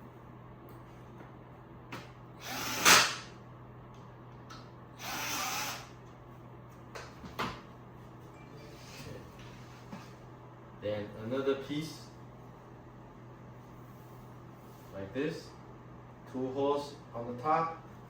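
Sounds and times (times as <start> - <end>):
power drill driving screws: 2.4 - 3.3, 5.0 - 5.9.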